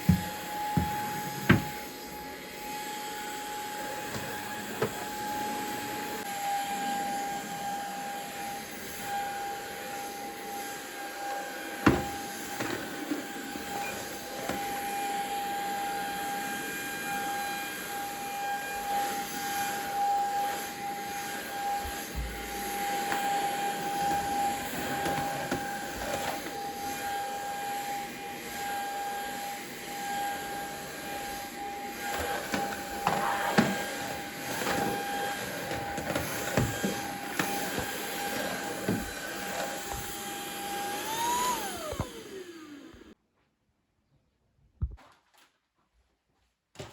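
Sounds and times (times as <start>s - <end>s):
electric motor whining: 13.4s - 43.2s.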